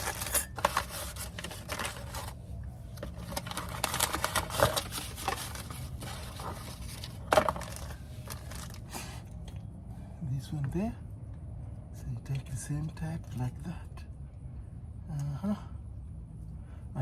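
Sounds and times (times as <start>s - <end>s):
metallic clicks and scrapes: 0.0s - 2.4s.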